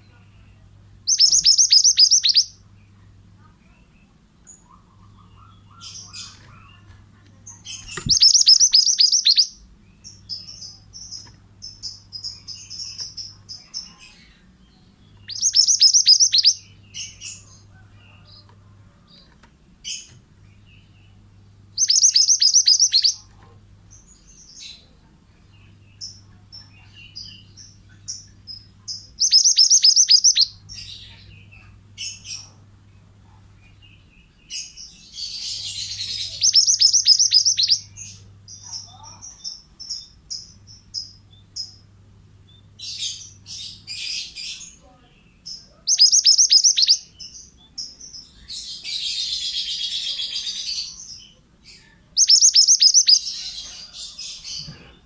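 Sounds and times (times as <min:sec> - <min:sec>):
soft bird chirps: 0:00.0 - 0:41.9, 0:42.5 - 0:55.0.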